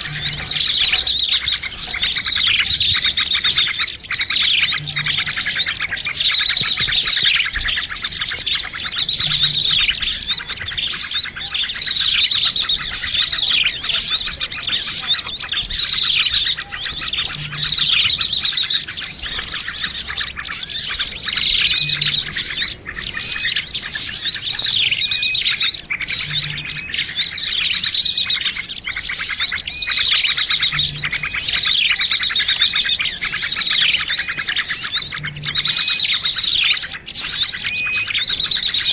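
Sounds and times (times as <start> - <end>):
small birds chirping and twittering: 0.0 - 38.9.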